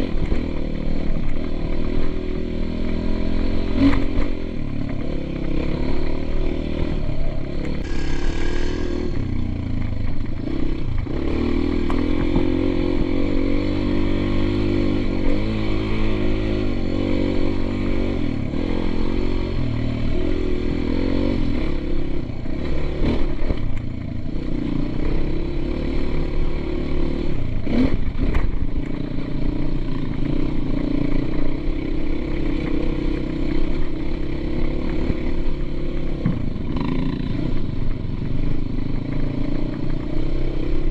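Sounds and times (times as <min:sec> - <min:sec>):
dirt bike engine revving: 0:03.1 - 0:22.0, 0:34.4 - 0:37.6.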